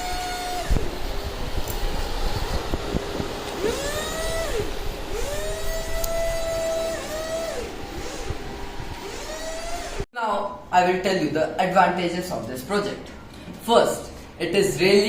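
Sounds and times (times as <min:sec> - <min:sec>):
small electric motors whirring: 0:00.0 - 0:10.1
steady background noise: 0:00.0 - 0:15.0.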